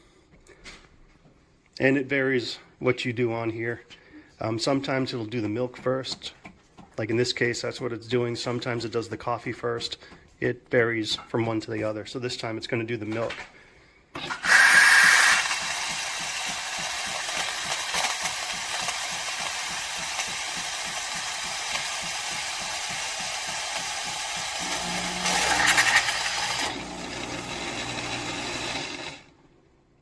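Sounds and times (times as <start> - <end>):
steam hiss frothing milk: 14.2 - 26.7
pump pulsing: 14.2 - 29.2.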